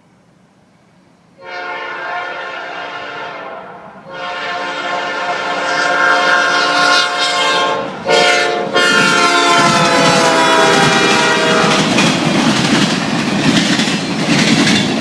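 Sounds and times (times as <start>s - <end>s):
train rumble: 0.0s - 15.0s
train air horn: 1.4s - 12.0s.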